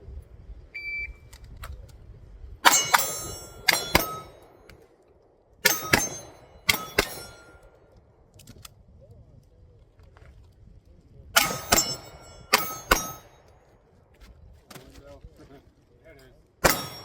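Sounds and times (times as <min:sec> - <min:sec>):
pistol shots: 0:02.6 - 0:04.7, 0:05.6 - 0:07.6, 0:11.4 - 0:13.6, 0:16.6 - 0:17.0
steel targets ringing: 0:02.6 - 0:04.7, 0:05.6 - 0:07.9, 0:11.4 - 0:13.7, 0:16.6 - 0:17.0.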